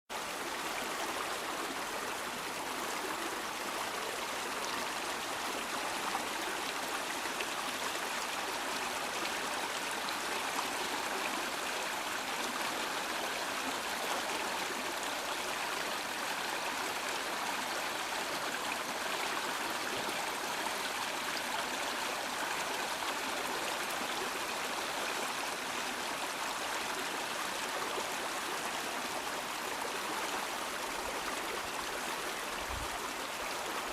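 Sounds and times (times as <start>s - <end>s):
stream rushing over rocks: 0.1s - 33.9s.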